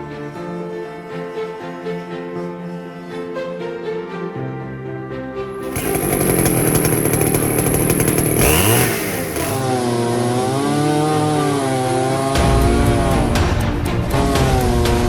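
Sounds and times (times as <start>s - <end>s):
two-stroke chainsaw running: 5.6s - 9.7s.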